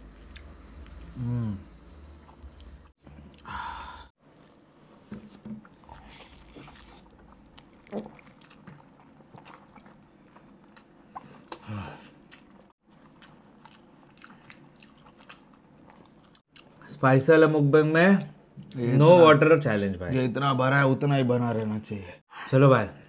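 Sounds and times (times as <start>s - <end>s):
chewing soft noodles: 0.0s - 1.4s, 5.6s - 16.8s
slurp: 5.6s - 10.0s.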